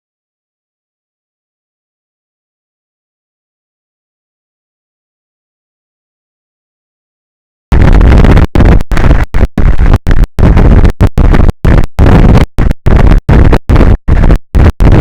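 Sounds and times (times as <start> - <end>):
wind blasting microphone: 7.7 - 15.0.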